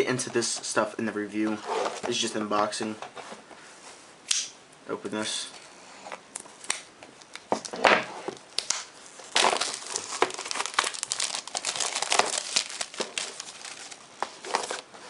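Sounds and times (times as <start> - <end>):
packaging crinkling and rustling: 7.3 - 14.9.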